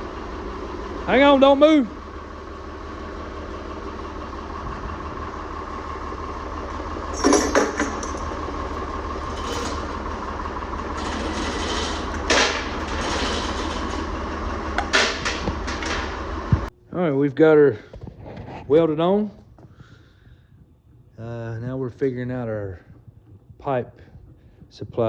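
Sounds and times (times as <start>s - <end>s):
engine running: 0.0s - 16.9s, 17.6s - 25.0s
light clatter: 6.6s - 16.7s
loud engine knocks: 6.7s - 16.7s.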